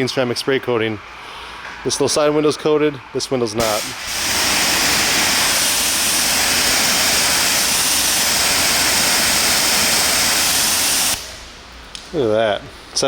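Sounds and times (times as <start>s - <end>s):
water jet spraying on glass: 3.6s - 11.6s.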